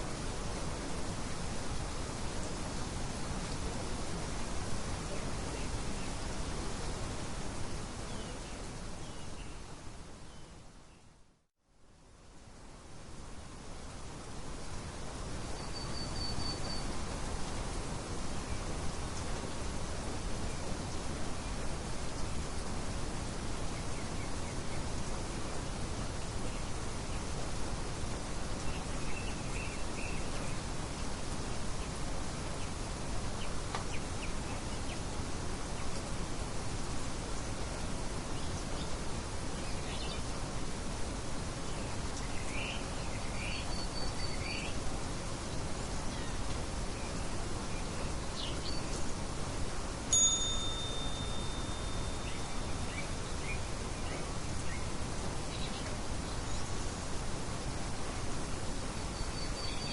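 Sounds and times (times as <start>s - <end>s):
nature ambience: 0.0s - 59.9s
steady hiss: 0.0s - 59.9s
faint bird chirps: 15.5s - 17.0s, 42.2s - 44.8s, 50.1s - 54.9s, 59.1s - 59.9s
bell-like timer chime: 50.1s - 52.2s.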